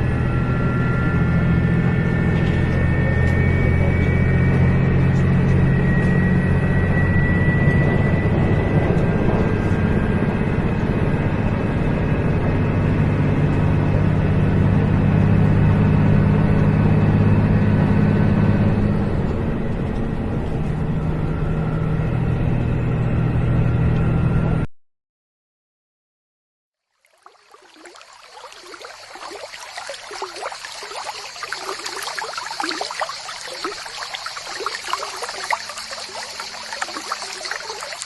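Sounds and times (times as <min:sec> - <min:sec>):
engine low mechanical drone: 0:00.0 - 0:24.7.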